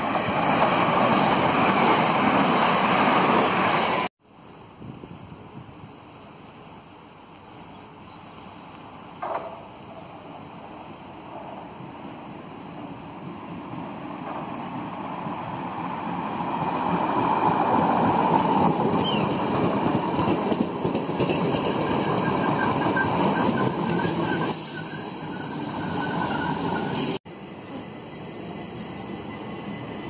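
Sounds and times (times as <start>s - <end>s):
train wheels rumbling on rails: 9.2s - 30.0s.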